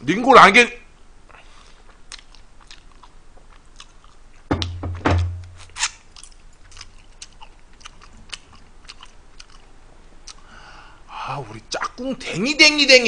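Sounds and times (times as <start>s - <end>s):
wet chewing mouth smacks: 1.9s - 4.2s
knocks: 4.5s - 5.6s.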